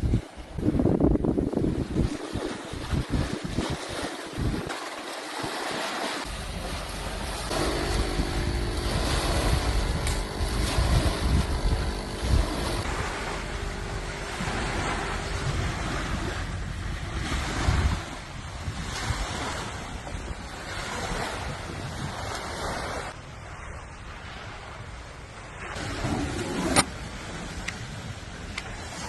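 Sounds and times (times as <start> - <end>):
wind buffeting microphone: 0.0 - 4.8, 6.2 - 29.0
sea waves washing on shore: 0.0 - 29.0
faint steady hum: 6.3 - 18.2.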